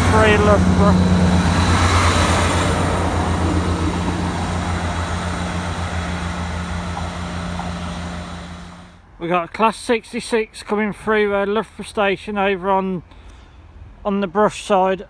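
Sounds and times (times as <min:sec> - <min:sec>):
diesel train engine throbbing: 0:00.0 - 0:09.2.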